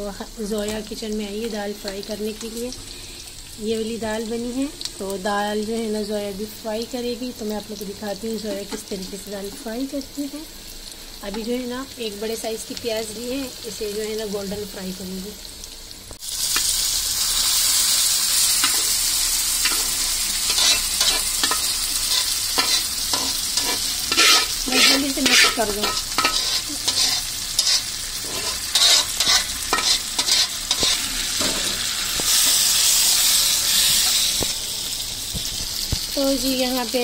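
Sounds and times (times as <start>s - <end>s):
food sizzling in oil: 0.0s - 37.0s
metal spatula scraping a pan: 18.6s - 34.4s.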